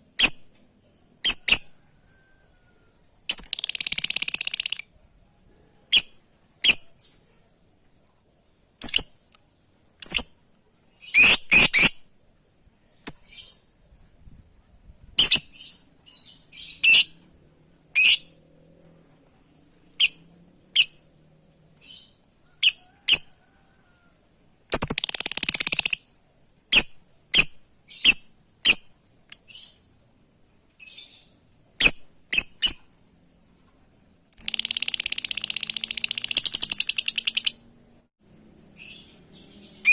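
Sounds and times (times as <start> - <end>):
lovebird high-pitched calls: 1.2 - 1.8, 3.3 - 5.0, 5.9 - 7.3, 8.8 - 9.2, 10.0 - 10.4, 11.0 - 12.0, 15.2 - 17.2, 17.9 - 18.4, 19.8 - 21.0, 21.8 - 23.3, 24.7 - 26.1, 26.7 - 29.9, 30.8 - 32.9, 34.3 - 37.6, 38.8 - 39.9.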